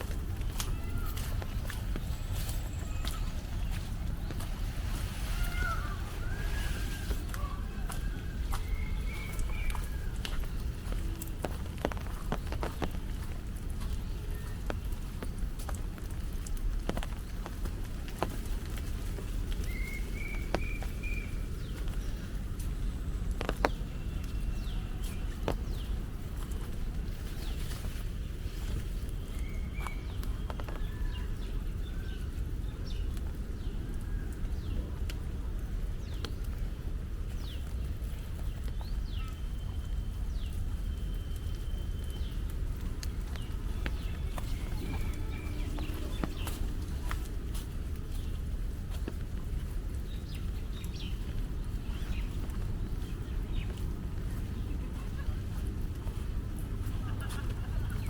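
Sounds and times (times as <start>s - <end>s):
birds calling: 0.0s - 16.2s, 16.8s - 28.0s, 37.3s - 58.0s
constant low rumble: 0.0s - 58.0s
low rumble: 39.4s - 58.0s.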